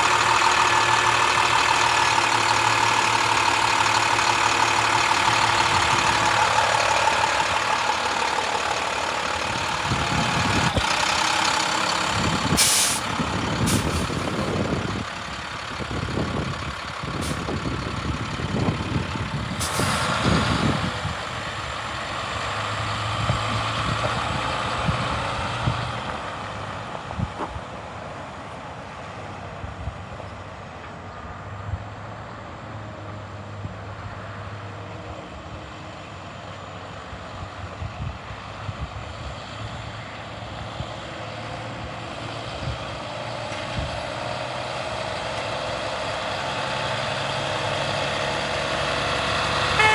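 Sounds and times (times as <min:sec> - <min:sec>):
diesel truck engine running: 0:00.0 - 0:28.8, 0:35.4 - 0:49.9
sharp air hisses: 0:12.5 - 0:14.5, 0:19.6 - 0:20.2.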